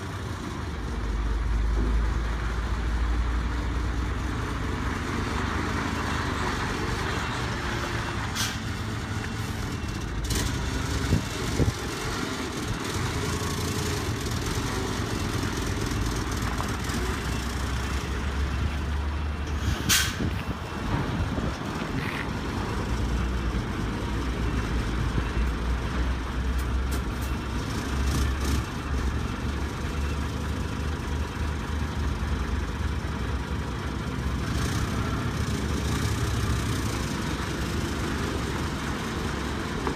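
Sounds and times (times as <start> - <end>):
diesel engine idling: 28.6 - 39.9.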